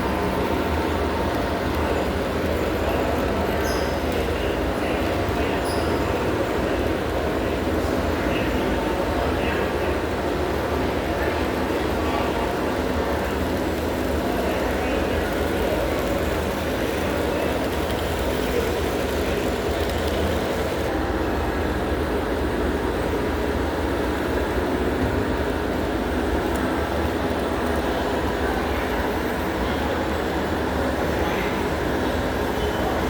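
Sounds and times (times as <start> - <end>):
busy hall noise: 0.0 - 33.0
model trains running: 0.0 - 33.0.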